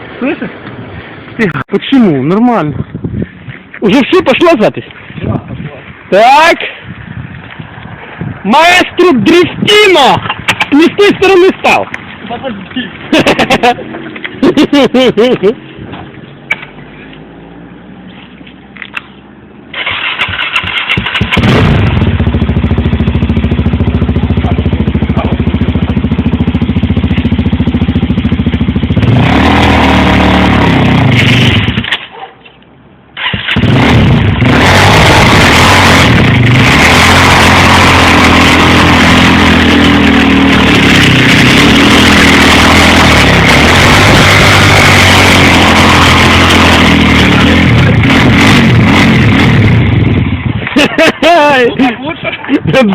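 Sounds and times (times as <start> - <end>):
small engine revving: 19.7 - 23.5, 24.1 - 32.0, 33.2 - 50.3.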